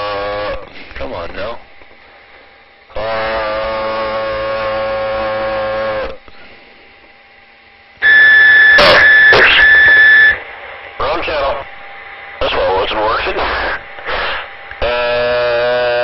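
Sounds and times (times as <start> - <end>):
buzzy radio tone: 0.0 - 1.7, 2.9 - 6.2, 8.0 - 16.0
high steady beep: 8.0 - 10.5.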